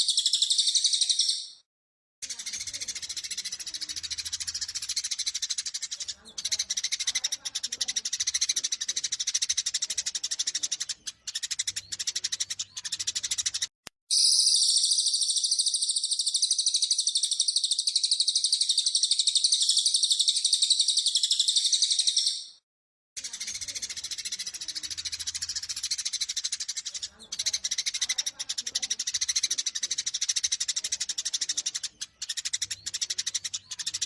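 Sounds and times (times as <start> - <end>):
sparrows chattering: 0.0 - 1.6, 2.2 - 22.6, 23.2 - 34.0
bird fast high trill: 14.1 - 16.9.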